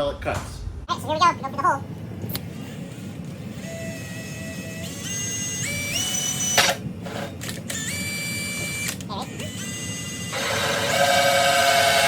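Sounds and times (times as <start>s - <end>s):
power drill motor whine: 3.5s - 12.0s.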